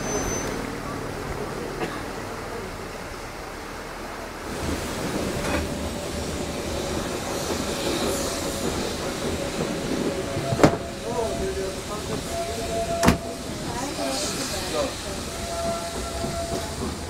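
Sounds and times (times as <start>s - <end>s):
wheels squealing: 0.0s - 0.8s, 6.0s - 17.0s
train carriages rumbling on track: 0.0s - 17.0s.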